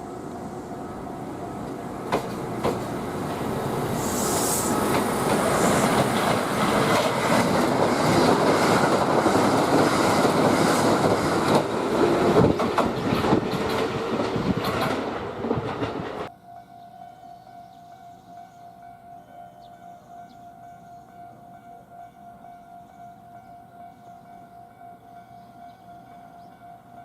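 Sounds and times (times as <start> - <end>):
electric train running past: 0.0 - 27.0
wheels clicking over rail joints: 1.6 - 3.5, 4.8 - 16.3.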